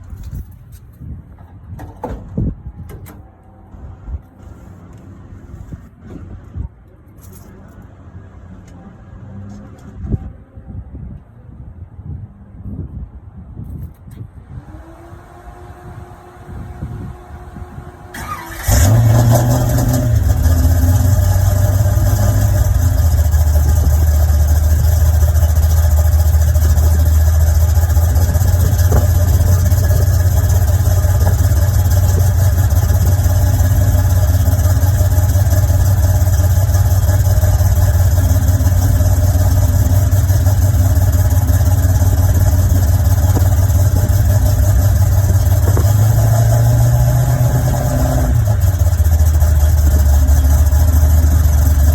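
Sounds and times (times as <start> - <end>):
car engine idling: 14.6 - 51.9.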